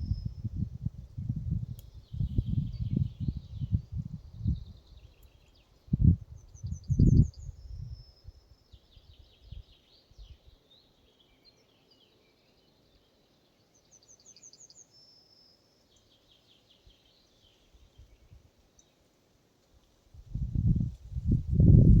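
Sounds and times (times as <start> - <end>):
songbird singing: 0.0 - 19.1
faint forest ambience: 0.0 - 21.2.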